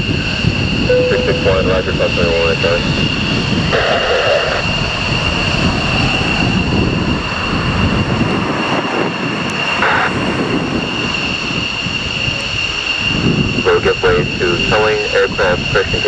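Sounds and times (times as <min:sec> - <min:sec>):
jet engines roaring: 0:00.0 - 0:16.0
high-pitched jet whine: 0:00.1 - 0:07.8.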